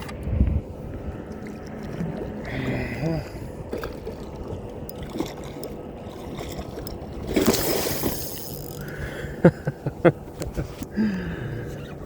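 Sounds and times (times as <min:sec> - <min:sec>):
water splash: 0:03.7 - 0:08.8.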